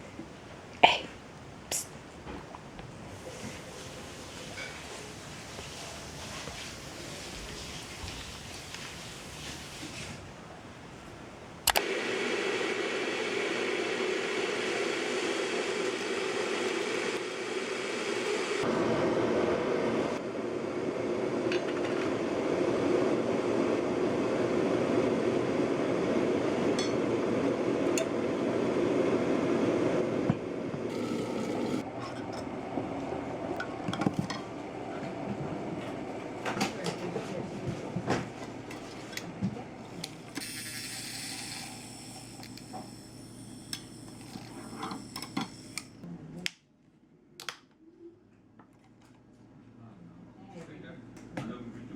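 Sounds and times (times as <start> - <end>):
machine humming: 22.1 - 33.9.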